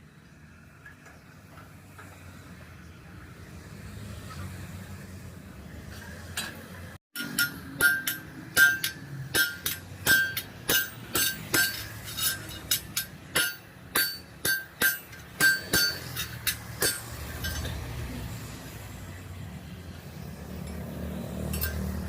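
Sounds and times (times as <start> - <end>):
hammer striking metal panel: 7.2 - 17.6.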